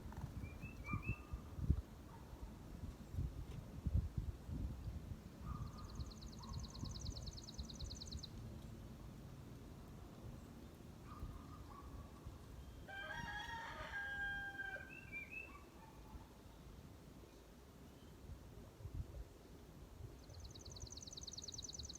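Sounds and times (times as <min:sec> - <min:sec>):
rooster crowing: 0:12.9 - 0:15.1
songbird high trill: 0:14.6 - 0:15.8.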